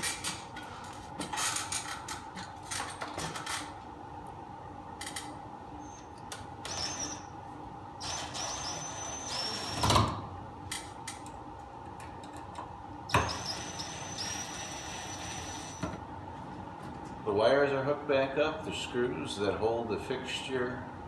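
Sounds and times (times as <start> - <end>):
high squeaks of screws driven: 6.7 - 7.3, 8.0 - 9.9, 13.1 - 15.8.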